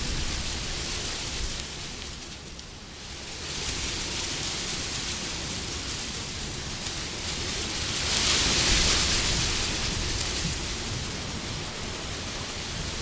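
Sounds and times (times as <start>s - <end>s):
wind blowing in gusts: 0.0s - 2.4s, 7.6s - 13.0s.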